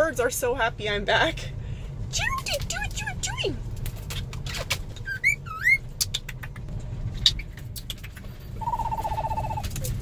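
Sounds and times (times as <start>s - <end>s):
steady low rumble: 0.0s - 10.0s
cockatiel whistled chirps: 5.0s - 5.8s, 8.6s - 9.6s.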